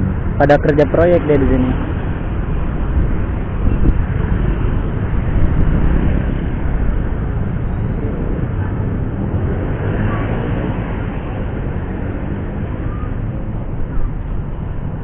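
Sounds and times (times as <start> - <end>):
road noise: 0.0 - 15.0
wind noise on microphone: 1.5 - 15.0.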